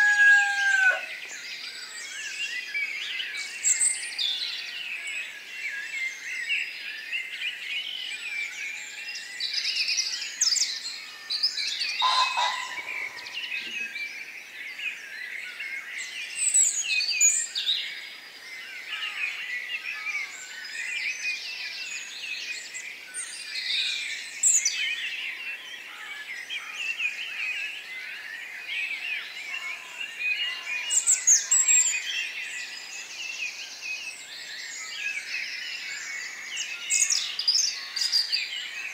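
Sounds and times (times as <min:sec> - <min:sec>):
small birds chirping and trilling: 0:00.0 - 0:38.9
sharp high bird calls: 0:11.9 - 0:13.9.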